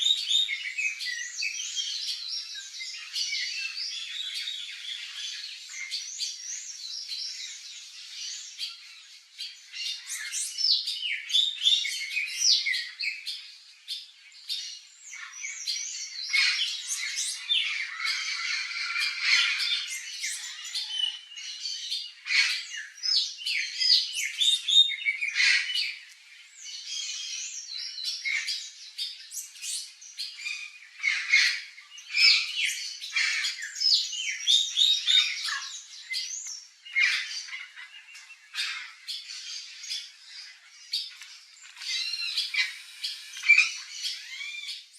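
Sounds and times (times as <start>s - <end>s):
parrots squawking: 17.7s - 19.9s, 41.9s - 44.7s.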